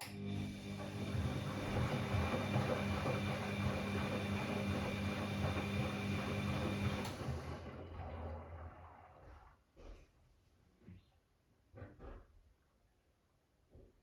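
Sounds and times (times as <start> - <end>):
drain pump hum: 0.3 - 9.2.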